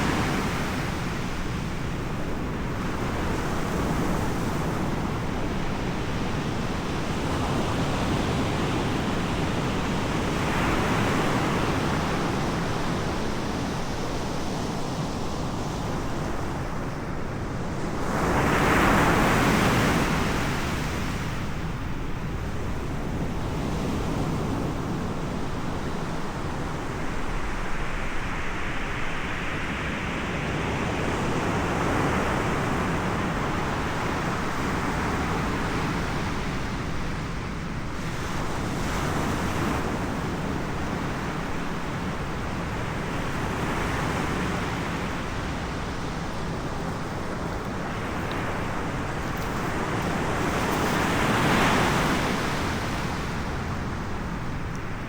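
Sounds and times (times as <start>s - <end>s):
waves breaking on shore: 15.2s - 55.0s.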